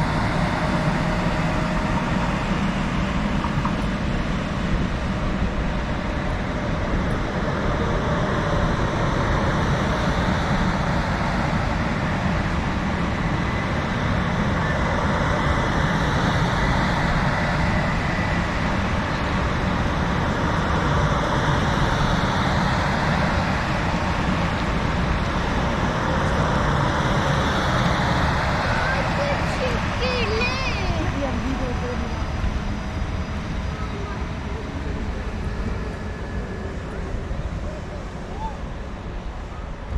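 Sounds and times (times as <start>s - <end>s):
faint gliding whining tones: 0.0s - 9.6s, 23.1s - 39.9s
passing vehicles rumbling: 0.0s - 39.9s.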